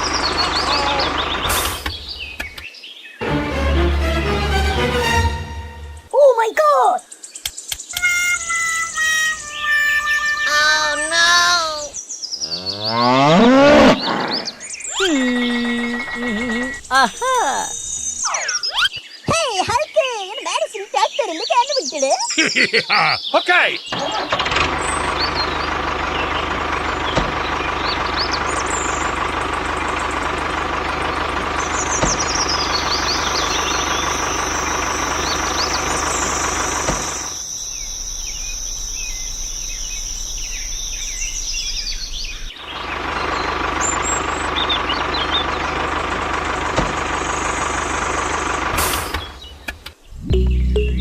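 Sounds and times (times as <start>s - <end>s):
engine idling: 0.0s - 2.6s, 15.0s - 18.2s, 24.0s - 51.0s
birds chirping: 0.0s - 51.0s.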